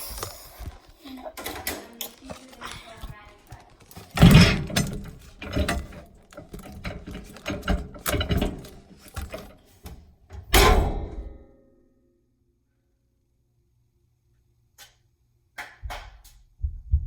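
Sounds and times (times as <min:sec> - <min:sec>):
clicking and rattling handling: 0:00.0 - 0:10.0.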